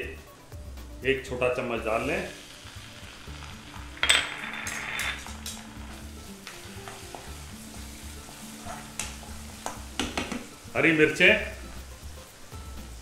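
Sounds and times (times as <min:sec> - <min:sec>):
onions sizzling in oil: 0:00.0 - 0:13.0
spatula scraping pan: 0:02.9 - 0:10.5.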